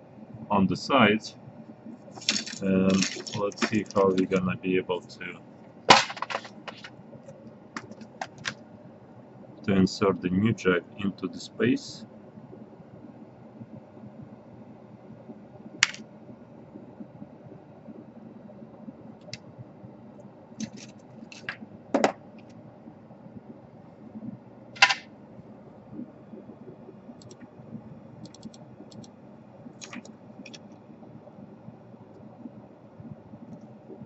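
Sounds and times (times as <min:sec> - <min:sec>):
tools and plastic parts clicking: 0:02.2 - 0:04.3, 0:05.9 - 0:06.9, 0:07.8 - 0:08.6, 0:29.8 - 0:30.6.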